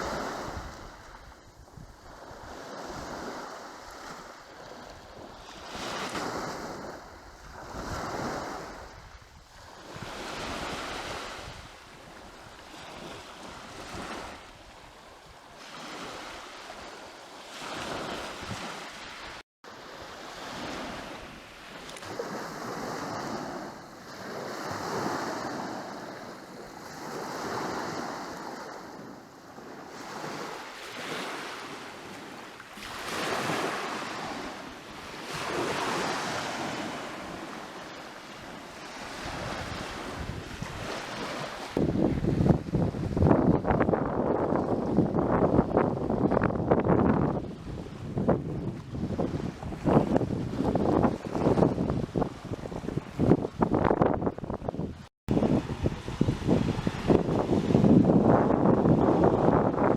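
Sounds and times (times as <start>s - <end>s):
wind buffeting microphone: 0.0s - 17.0s, 33.0s - 59.9s
sea waves washing onto shore: 0.0s - 44.9s.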